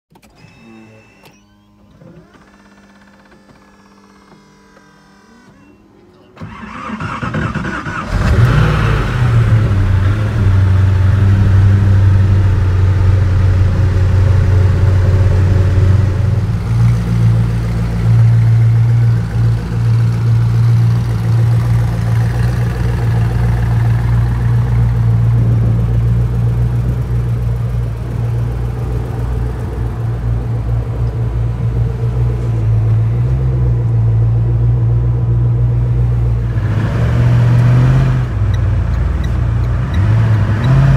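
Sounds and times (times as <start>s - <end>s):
starter motor cranking: 6.4s - 9.4s
car engine revving and idling: 6.4s - 40.9s.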